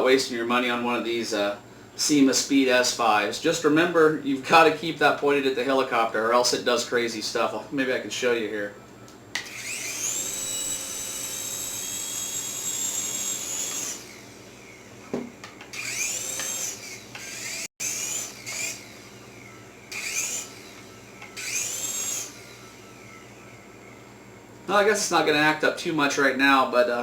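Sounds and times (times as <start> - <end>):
toy helicopter motors whining: 9.4 - 15.0, 15.7 - 24.0.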